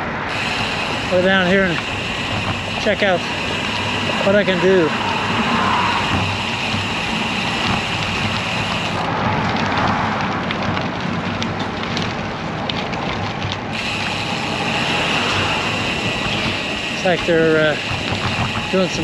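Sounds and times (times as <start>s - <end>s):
tyre and road rumble: 0.0s - 19.0s
fine ticking: 0.3s - 9.1s, 13.7s - 19.0s.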